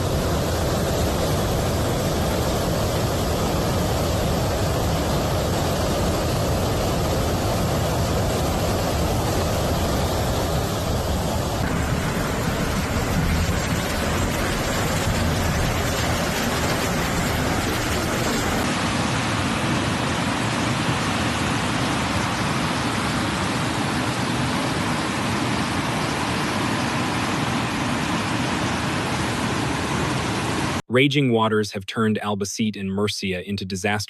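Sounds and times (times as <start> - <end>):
heavy rain: 0.0 - 19.1.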